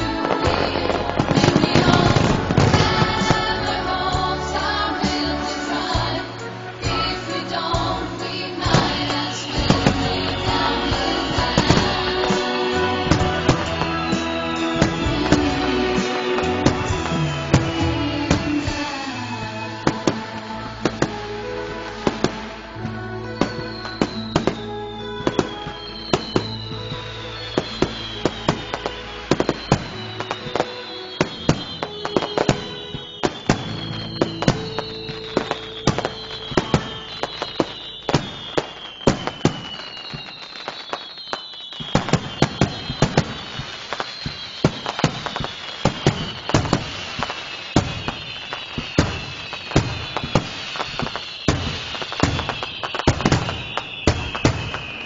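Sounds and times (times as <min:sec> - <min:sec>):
background music: 0:00.0 - 0:39.9
fireworks bangs and crackles: 0:00.0 - 0:55.0
fireworks whistles falling in pitch: 0:00.0 - 0:55.0.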